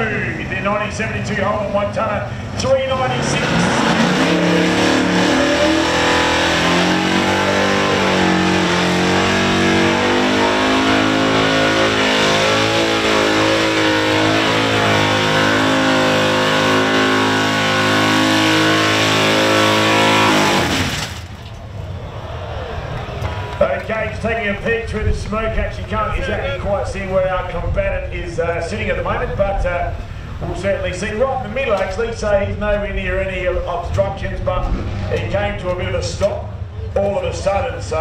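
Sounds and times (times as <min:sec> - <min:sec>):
engine at high revs: 0:02.6 - 0:21.1, 0:34.6 - 0:35.3.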